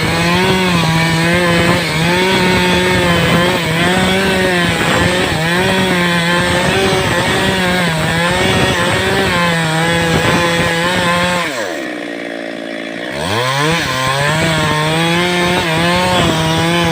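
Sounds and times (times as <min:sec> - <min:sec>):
chainsaw cutting wood: 0:00.0 - 0:16.9.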